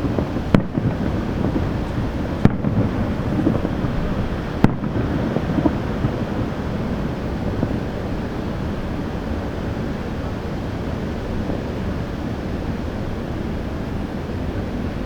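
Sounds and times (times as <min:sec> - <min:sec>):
firework shells bursting: 0:00.0 - 0:08.2.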